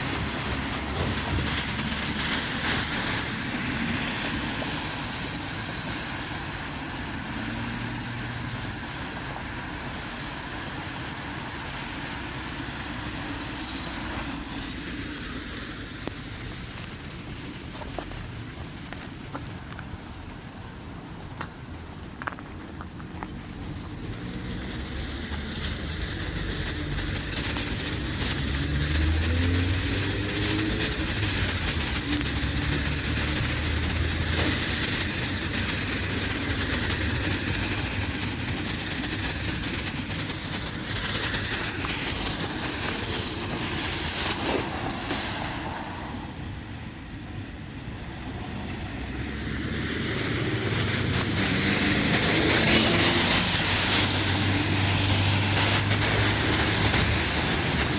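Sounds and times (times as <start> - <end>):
vehicles passing: 0.0 - 57.9.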